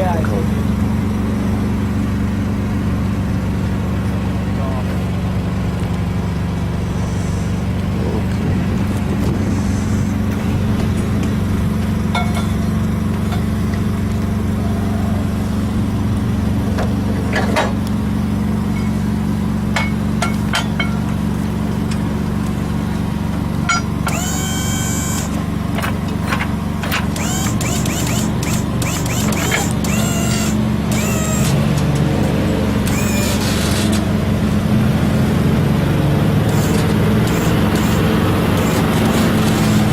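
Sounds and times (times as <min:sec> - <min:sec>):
large engine idling: 0:00.0 - 0:39.9
light clinks and knocks: 0:12.1 - 0:13.5.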